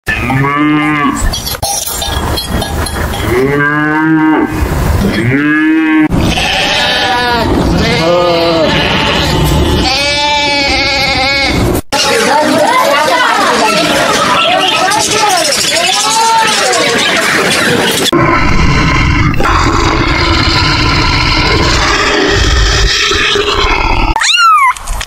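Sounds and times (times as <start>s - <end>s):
cattle mooing: 0.1s - 1.2s, 3.3s - 4.6s, 5.2s - 11.6s.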